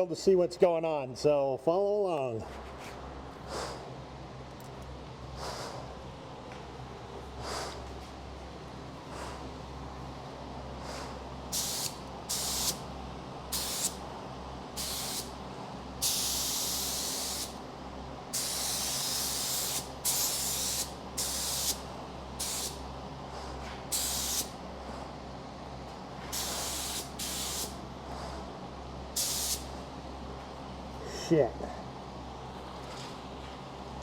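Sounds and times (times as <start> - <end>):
steady low hum: 0.0 - 34.0
spray gun hissing: 11.0 - 12.8, 13.5 - 14.0, 14.8 - 15.4, 16.0 - 17.6, 18.3 - 21.8, 22.4 - 22.8, 23.9 - 24.5, 26.3 - 27.8, 29.2 - 29.7.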